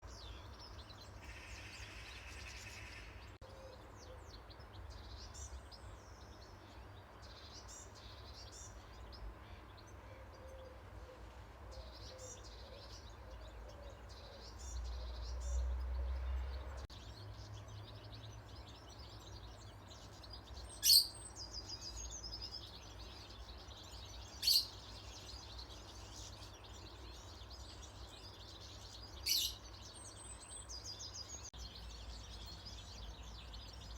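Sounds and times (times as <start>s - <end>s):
small birds chirping: 0.0s - 33.9s
sharp loud bird calls: 1.1s - 3.8s, 20.1s - 31.5s.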